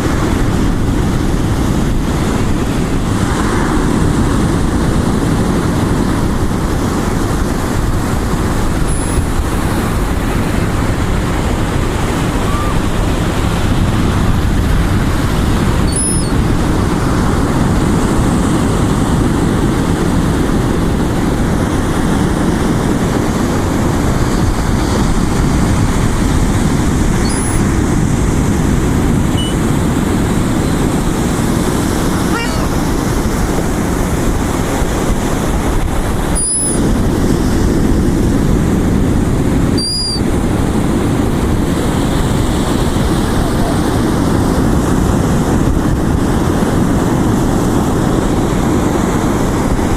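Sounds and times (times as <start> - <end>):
ocean surf: 0.0 - 49.9
wind on microphone: 0.0 - 49.9
faint high squeaks: 8.8 - 9.4, 12.4 - 12.9, 15.9 - 16.4, 27.2 - 27.7, 29.4 - 29.6, 36.3 - 36.9, 39.8 - 40.2.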